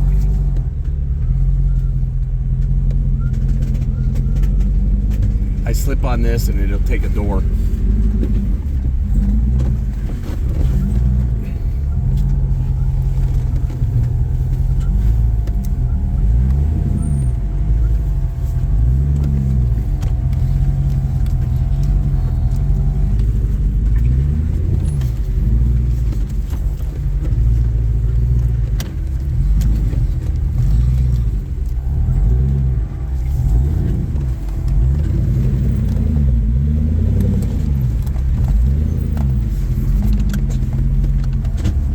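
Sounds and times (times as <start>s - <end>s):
engine revving: 2.5s - 41.9s
steady higher whine: 10.4s - 23.5s.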